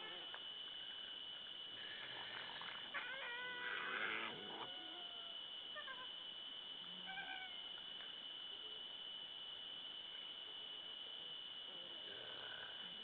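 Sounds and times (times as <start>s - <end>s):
wild animal calling: 2.9s - 6.2s.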